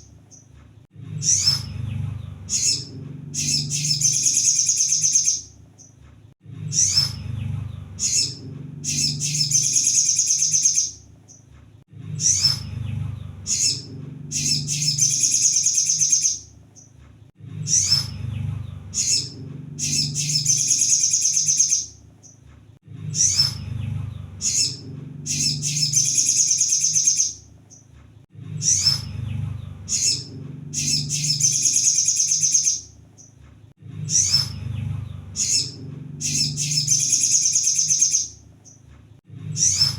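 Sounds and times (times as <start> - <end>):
low steady hum: 0.0 - 10.1, 10.9 - 21.1, 21.9 - 32.0, 32.8 - 37.3
bird chips and trills: 1.2 - 6.0, 6.7 - 11.5, 13.3 - 17.0, 17.7 - 22.4, 24.3 - 27.9, 29.8 - 33.4, 34.1 - 38.8, 39.6 - 39.9.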